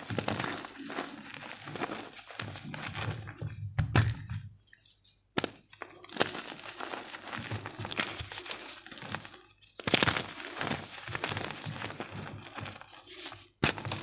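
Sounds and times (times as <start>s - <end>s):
chalk crunching: 0.0s - 3.1s.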